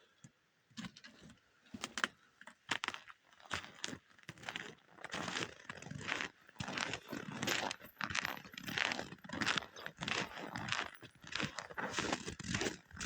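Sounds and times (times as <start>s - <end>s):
footsteps crunching through snow: 6.6s - 13.0s.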